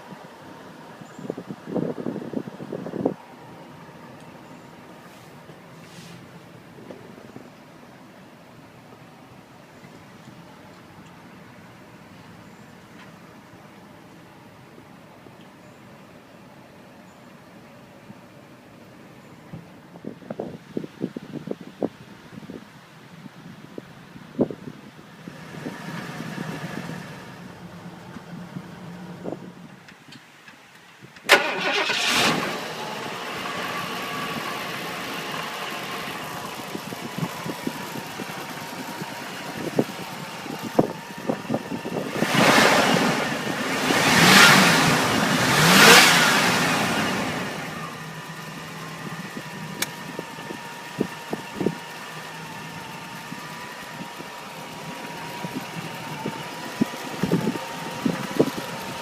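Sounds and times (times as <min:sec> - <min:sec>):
engine starting and idling: 0:31.2 - 0:59.0
engine revving: 0:31.3 - 0:59.0.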